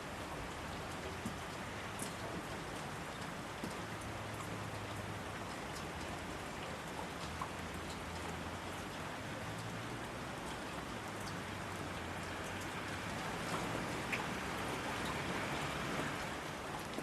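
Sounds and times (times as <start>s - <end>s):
rain hiss: 7.7s - 17.0s.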